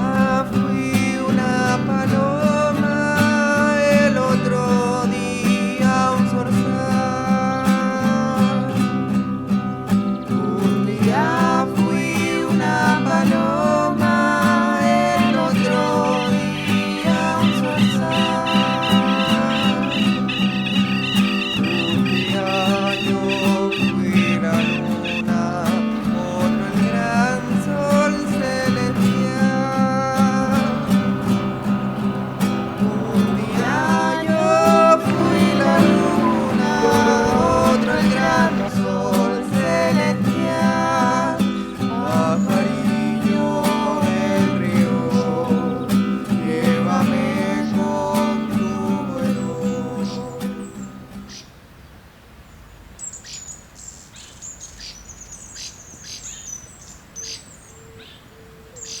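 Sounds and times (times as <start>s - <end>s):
acoustic guitar music: 0.0s - 51.4s
small birds chirping: 14.1s - 38.8s, 41.4s - 59.0s.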